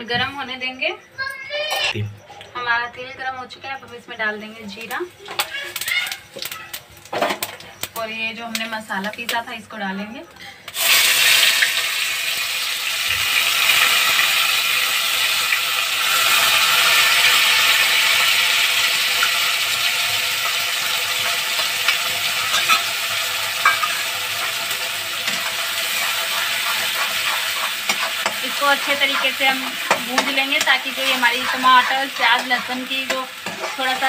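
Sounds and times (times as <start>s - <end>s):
paste sizzling in hot oil: 10.7s - 34.0s
spatula scraping and stirring: 21.2s - 34.0s.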